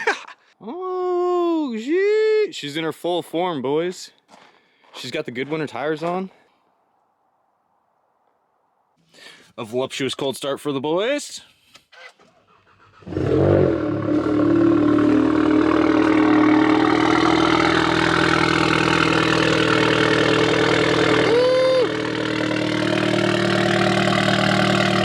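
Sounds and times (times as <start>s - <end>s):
car engine starting and idling: 12.1s - 25.0s.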